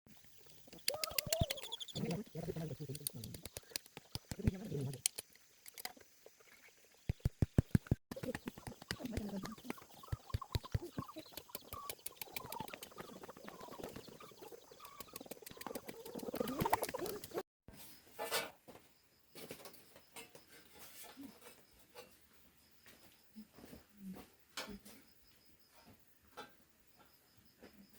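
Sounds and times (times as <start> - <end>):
poultry calling: 8.2 - 17.4.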